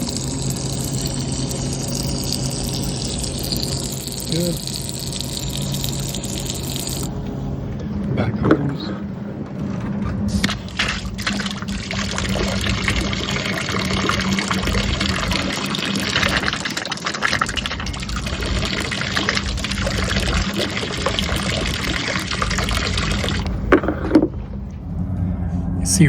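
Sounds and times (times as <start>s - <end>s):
water spraying from hose: 0.0s - 7.1s, 10.4s - 23.5s
pump humming: 0.0s - 7.2s, 10.3s - 24.9s.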